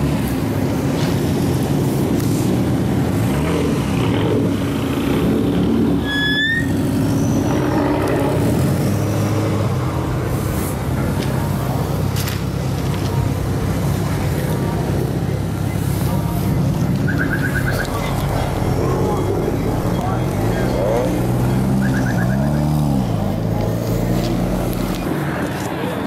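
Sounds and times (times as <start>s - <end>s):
car engines running: 0.0s - 26.0s
rising high whistle: 6.0s - 6.8s.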